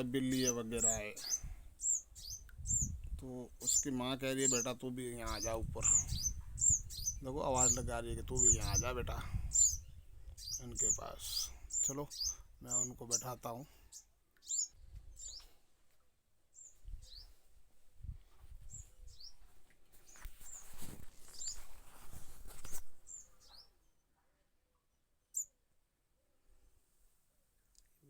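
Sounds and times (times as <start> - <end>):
small bird chirping: 0.0 - 15.6, 16.5 - 17.4, 18.6 - 24.0, 25.2 - 25.6
rustling and handling bumps: 19.5 - 23.1.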